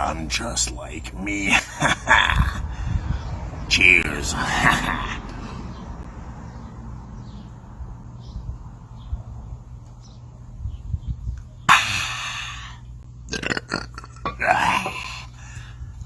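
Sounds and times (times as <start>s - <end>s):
man belching: 1.3s - 2.7s, 4.2s - 5.4s, 11.7s - 15.5s.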